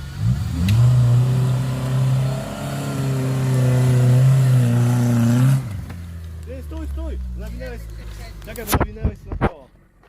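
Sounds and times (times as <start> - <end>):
car engine revving hard: 0.0 - 6.0.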